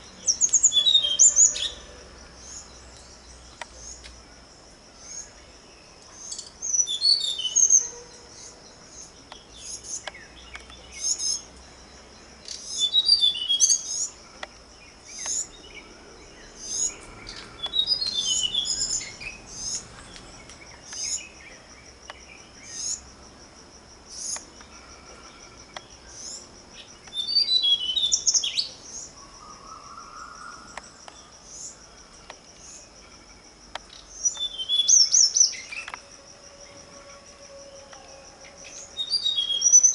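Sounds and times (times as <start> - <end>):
birds chirping: 4.9 - 23.0.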